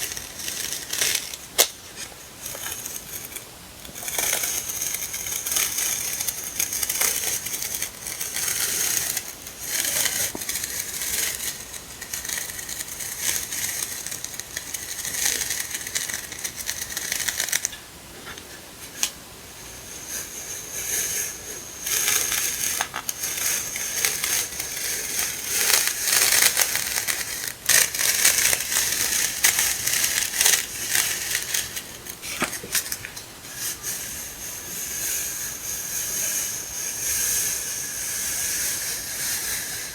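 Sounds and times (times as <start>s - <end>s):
packaging rustling and crinkling: 0.0s - 17.8s, 21.8s - 33.2s.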